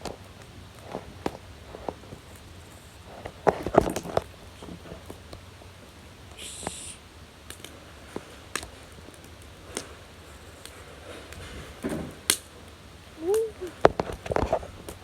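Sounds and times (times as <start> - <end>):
sharp pops from fire: 0.0 - 5.4, 6.2 - 15.0
wood fire crackling: 0.0 - 15.0
brief high hiss: 6.4 - 7.0.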